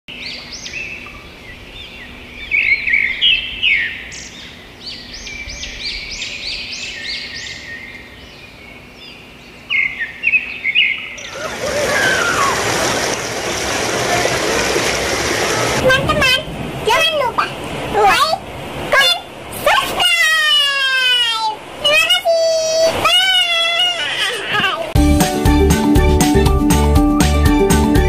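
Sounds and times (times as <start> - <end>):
birds chirping: 0.1 - 19.4
waterfall rushing: 11.3 - 25.0.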